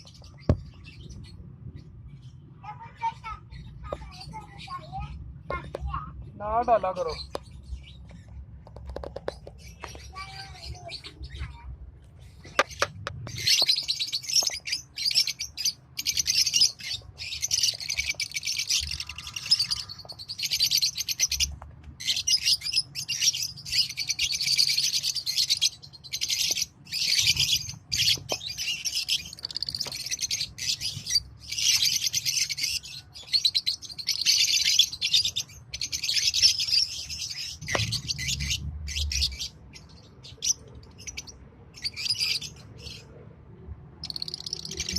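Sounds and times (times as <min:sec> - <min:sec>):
lovebirds chirping shrilly: 0:00.0 - 0:43.2, 0:44.0 - 0:44.9.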